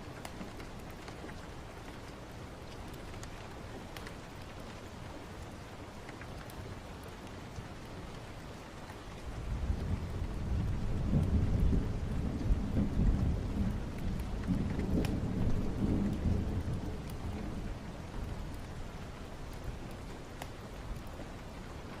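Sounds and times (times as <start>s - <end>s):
steady rain: 0.0s - 22.0s
thunder rolling: 9.5s - 18.3s.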